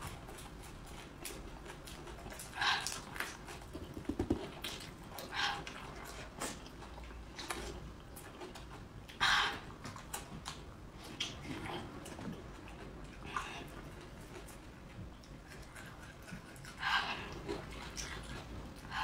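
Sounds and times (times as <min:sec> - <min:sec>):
person chewing with crunches: 0:00.0 - 0:19.0
mouth smacks: 0:02.4 - 0:05.0.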